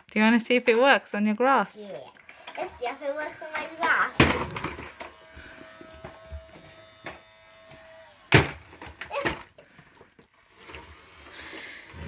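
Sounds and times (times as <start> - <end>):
toy vacuum cleaner motor humming: 1.8 - 9.5, 10.6 - 12.0.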